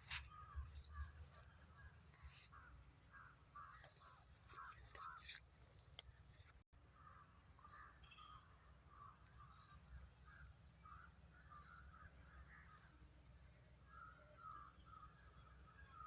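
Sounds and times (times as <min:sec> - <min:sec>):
faint bird calls: 0:13.8 - 0:16.0.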